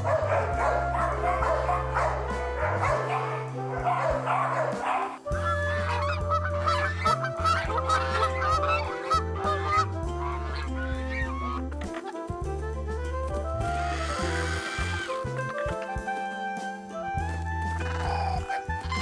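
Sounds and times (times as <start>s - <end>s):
waterfowl honking and calling: 0.0s - 12.1s, 17.8s - 19.0s
background music: 0.0s - 19.0s.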